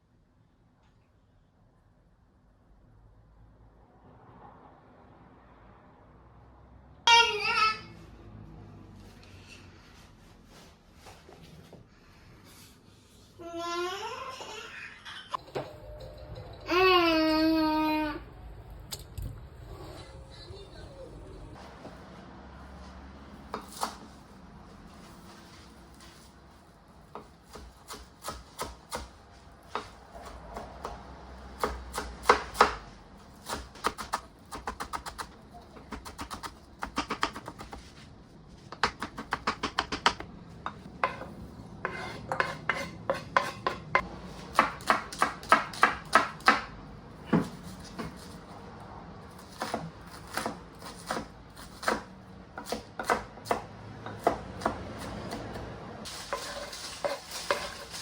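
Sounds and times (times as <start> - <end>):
knife chopping on cutting board: 41.0 - 43.8.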